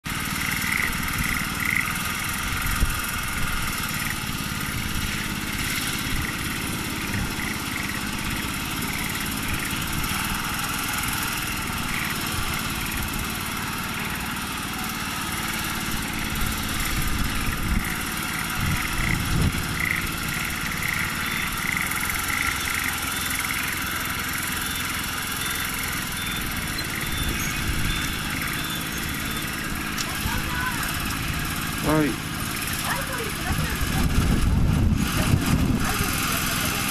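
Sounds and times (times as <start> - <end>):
small engine running steadily: 0.0 - 36.9
short high chirps: 24.6 - 29.6.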